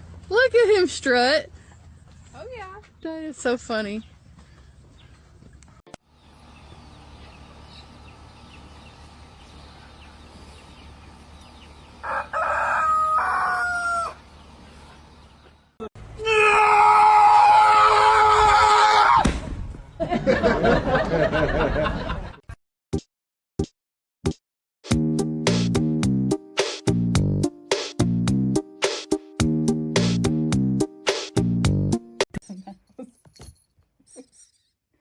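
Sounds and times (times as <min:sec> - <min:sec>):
rooster crowing: 0:12.0 - 0:14.2.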